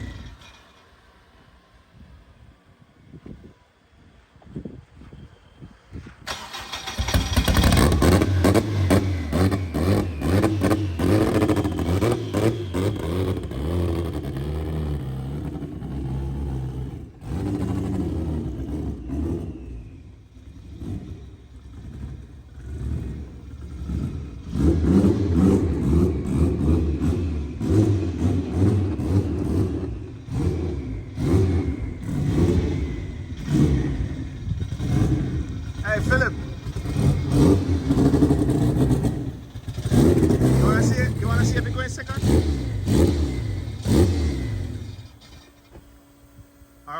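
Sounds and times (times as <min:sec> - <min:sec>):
car engine revving: 0:06.3 - 0:46.9.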